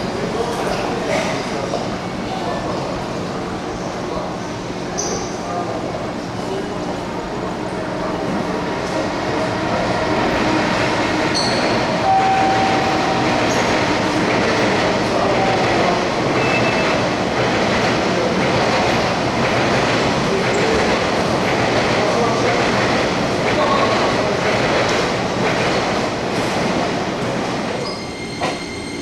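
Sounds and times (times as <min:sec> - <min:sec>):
train wheels rumbling on track: 0:00.0 - 0:29.0
train wheel squeal: 0:11.3 - 0:13.8, 0:16.4 - 0:17.0, 0:27.8 - 0:29.0.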